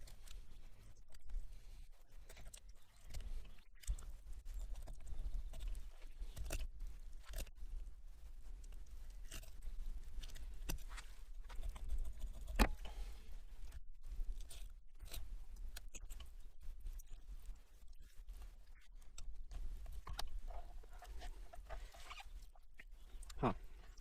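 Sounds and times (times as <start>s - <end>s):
knife crunching and scraping fish: 2.2s - 7.5s, 9.1s - 16.4s.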